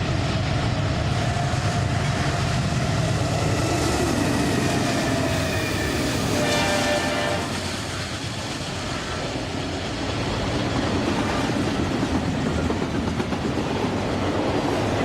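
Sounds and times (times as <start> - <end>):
train running past: 0.0 - 15.0
train horn: 4.7 - 7.8.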